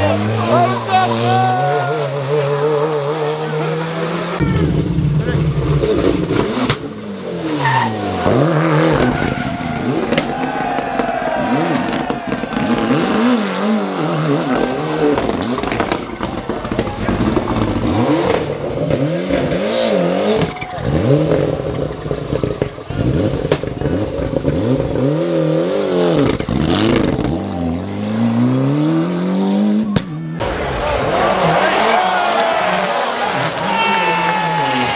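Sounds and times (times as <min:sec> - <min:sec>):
rally car engine revving: 0:00.0 - 0:34.9.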